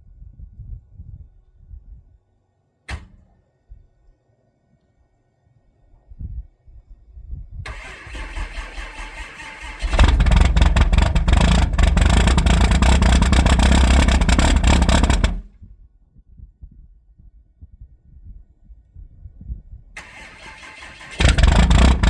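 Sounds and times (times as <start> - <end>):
starter motor cranking: 7.7 - 15.4, 20.0 - 22.0
diesel engine running rough: 7.7 - 15.5, 20.0 - 22.0.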